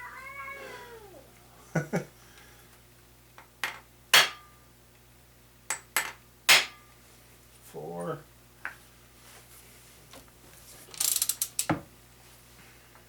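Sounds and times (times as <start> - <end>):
cat meowing: 0.0 - 1.3.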